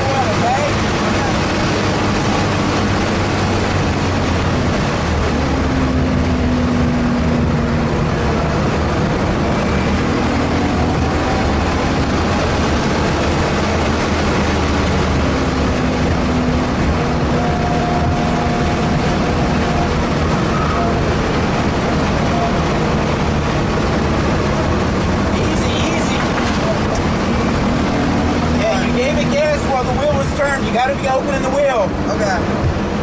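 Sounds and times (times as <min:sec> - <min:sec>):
car engine under load: 0:00.0 - 0:33.0
wind and road noise: 0:00.0 - 0:33.0.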